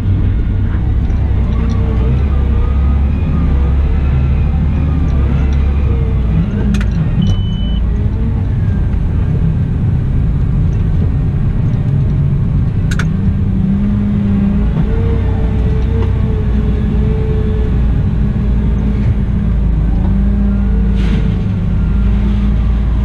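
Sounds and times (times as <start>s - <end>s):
wheel loader diesel engine rumbling: 0.0s - 23.0s
brief high beep: 7.2s - 7.8s.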